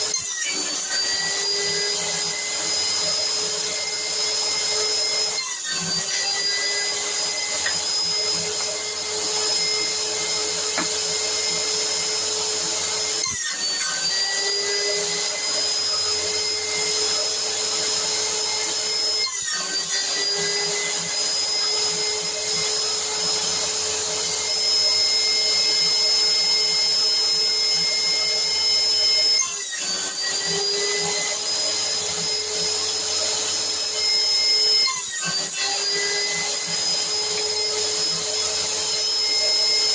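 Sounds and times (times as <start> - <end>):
electric motor whining: 0.0 - 39.9.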